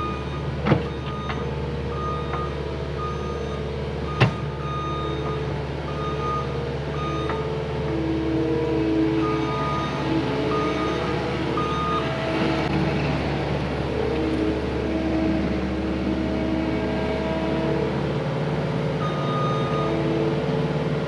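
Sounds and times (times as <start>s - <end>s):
reversing backup alarm beeping: 0.0s - 7.5s, 9.1s - 12.1s, 19.0s - 20.0s
diesel engine running: 0.0s - 21.0s.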